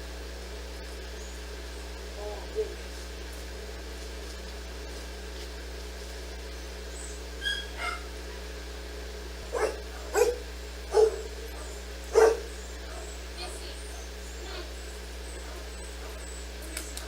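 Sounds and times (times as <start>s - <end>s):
steady low hum: 0.0s - 17.0s
dog barking sharply: 7.4s - 8.1s, 9.5s - 13.1s
dog whining: 7.4s - 8.1s, 9.5s - 13.6s.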